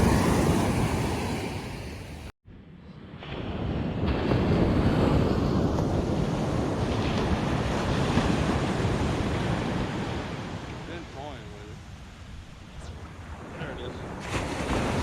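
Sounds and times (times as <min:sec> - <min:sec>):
ocean surf washing onto beach: 0:00.0 - 0:02.3
wind buffeting microphone: 0:00.0 - 0:02.3, 0:02.9 - 0:10.9.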